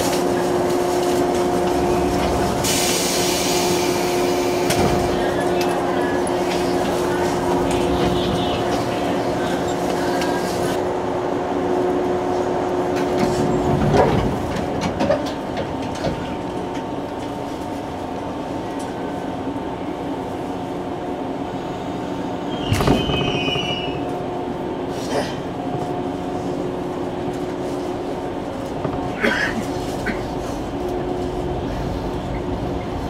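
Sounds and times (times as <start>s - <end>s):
train car humming: 0.0s - 33.0s
train car clunks: 4.2s - 10.5s, 12.9s - 17.4s, 22.5s - 24.2s, 28.6s - 30.4s
short train squeal: 22.5s - 24.0s.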